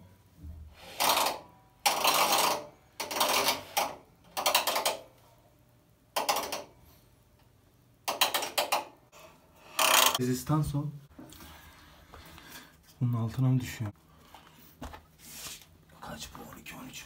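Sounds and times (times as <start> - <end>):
ratchet-like clicks: 0.9 - 5.1, 6.2 - 6.7, 9.7 - 10.2.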